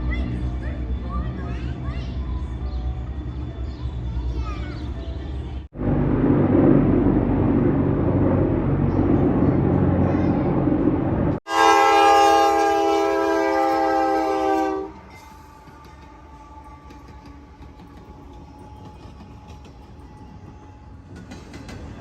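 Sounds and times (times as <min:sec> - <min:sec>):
train rumbling past: 0:00.0 - 0:22.0
low engine hum: 0:05.0 - 0:11.4
train horn blast: 0:11.5 - 0:15.6.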